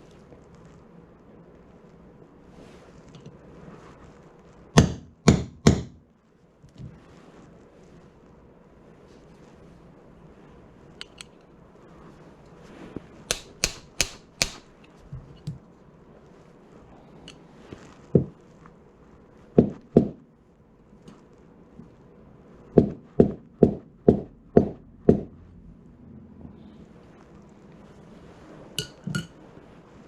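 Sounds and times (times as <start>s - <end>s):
sharp knocks: 4.8s - 6.0s, 13.3s - 14.7s.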